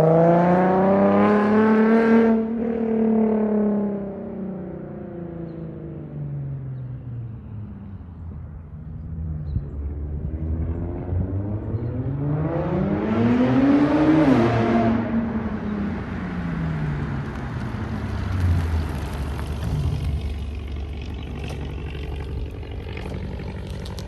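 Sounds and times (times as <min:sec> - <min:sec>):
car engine revving: 0:10.1 - 0:24.0.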